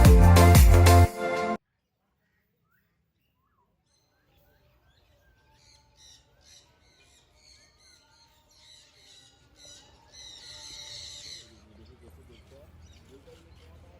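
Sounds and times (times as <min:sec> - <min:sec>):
birds squawking and chirping: 0:02.7 - 0:13.9.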